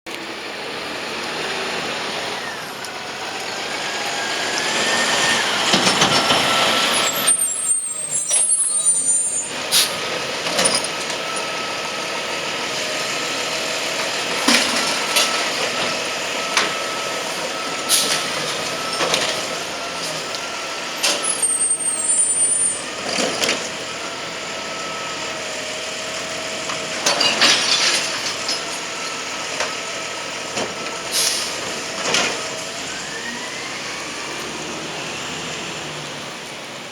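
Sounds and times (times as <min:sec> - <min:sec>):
garbage truck engine and hydraulics: 0:00.1 - 0:36.9
air brakes hissing: 0:04.4 - 0:11.4, 0:16.7 - 0:20.3, 0:31.0 - 0:34.8.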